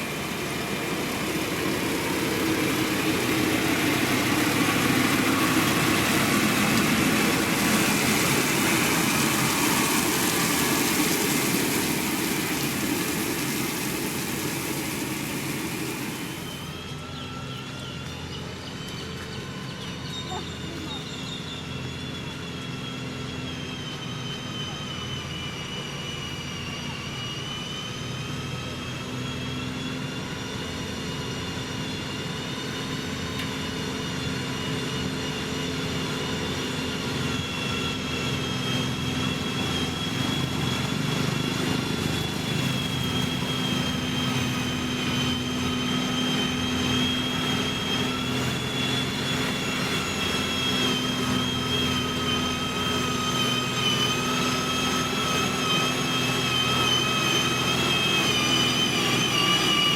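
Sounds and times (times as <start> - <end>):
high whine: 0.0 - 19.3
heavy machinery diesel engine: 0.0 - 30.1, 30.7 - 59.9.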